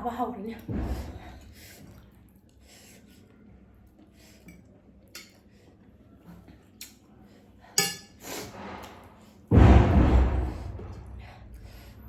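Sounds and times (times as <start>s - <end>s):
metal utensils clinking bowl: 7.8s - 8.2s.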